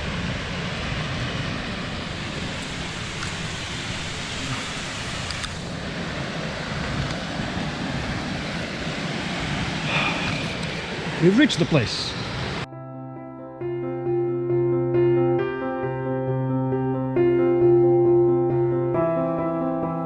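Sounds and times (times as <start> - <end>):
stream rushing over rocks: 0.0 - 12.7.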